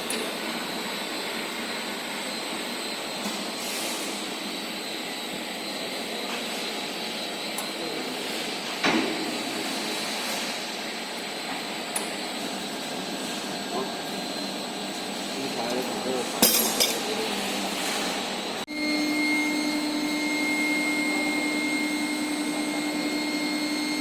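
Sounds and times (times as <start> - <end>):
metal clank: 16.4 - 17.1.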